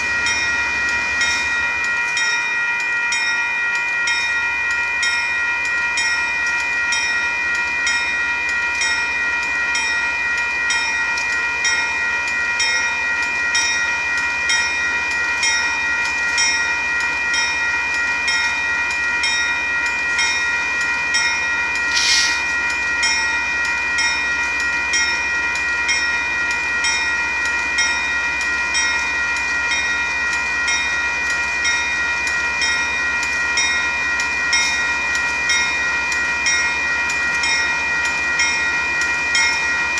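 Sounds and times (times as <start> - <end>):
short hiss: 21.8 - 22.6.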